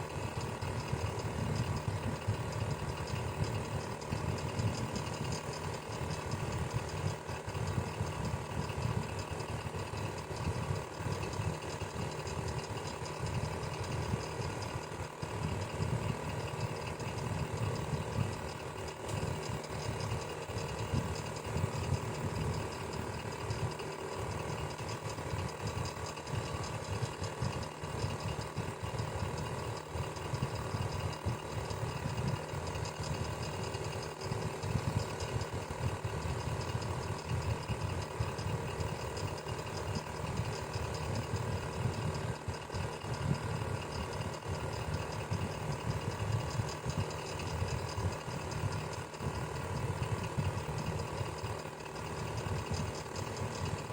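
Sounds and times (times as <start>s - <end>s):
electric fan running: 0.0s - 53.9s.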